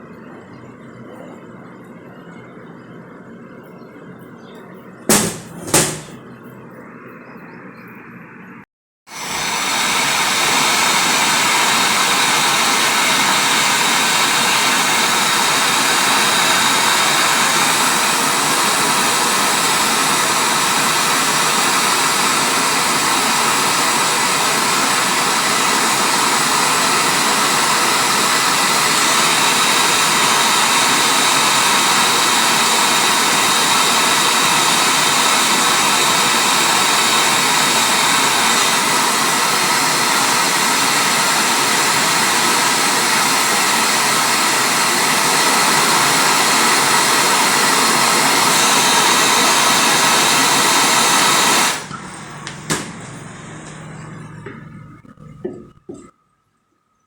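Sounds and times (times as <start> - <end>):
loud rushing hiss: 5.1 - 6.2, 9.1 - 51.9.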